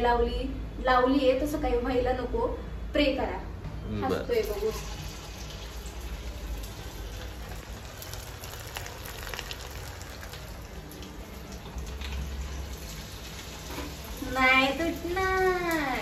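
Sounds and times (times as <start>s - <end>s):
fritters deep-frying in oil: 4.4s - 16.0s.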